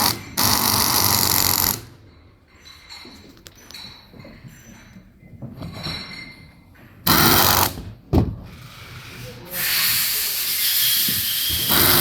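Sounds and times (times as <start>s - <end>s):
compressed air hissing: 8.7s - 12.0s
compressed air blast: 9.5s - 12.0s.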